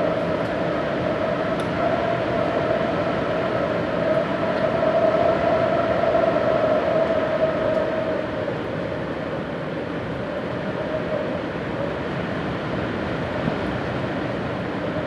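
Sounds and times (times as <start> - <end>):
strong wind blowing: 0.0 - 8.5.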